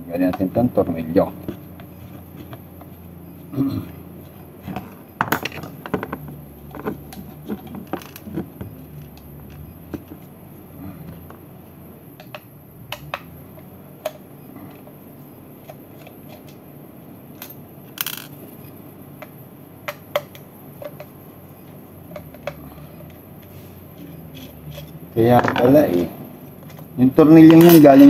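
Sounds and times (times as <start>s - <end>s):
metallic clicks and taps of tools: 22.1s - 23.2s.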